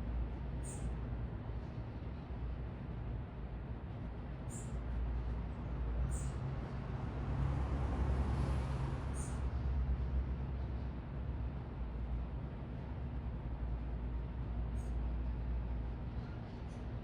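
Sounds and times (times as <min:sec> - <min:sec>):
city traffic rumble: 0:00.0 - 0:17.0
vehicle passing: 0:06.9 - 0:09.6.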